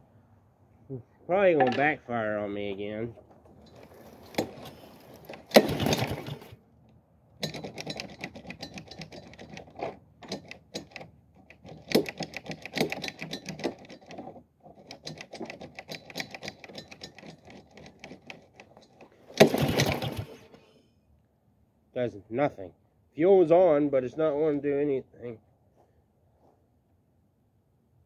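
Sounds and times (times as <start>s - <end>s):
lawn mower engine pull-started: 3.2s - 6.6s, 7.4s - 20.7s.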